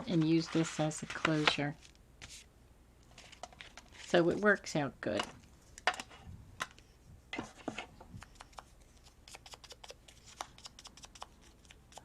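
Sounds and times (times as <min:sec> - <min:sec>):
paper rustling: 0:00.0 - 0:02.5.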